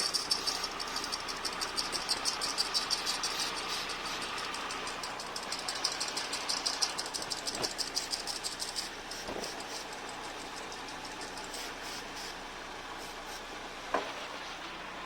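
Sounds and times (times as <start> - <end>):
fast even ticking: 0.0 - 11.8
car engine idling: 0.0 - 15.0.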